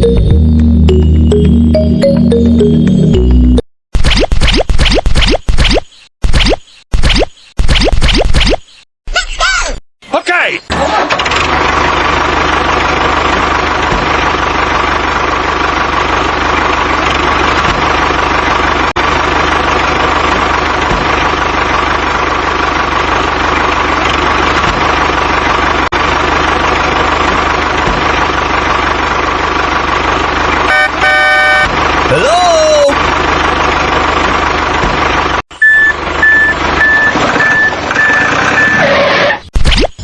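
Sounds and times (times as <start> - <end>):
engine running: 0.0 - 3.6, 10.7 - 39.5.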